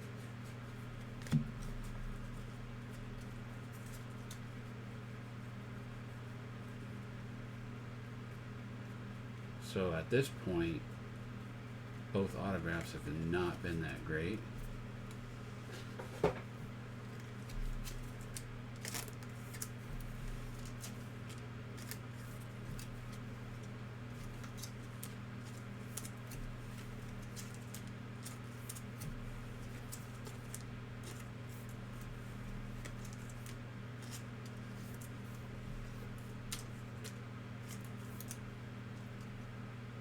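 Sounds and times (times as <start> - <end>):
low electrical hum: 0.0 - 40.0
cards being handled: 17.0 - 39.4.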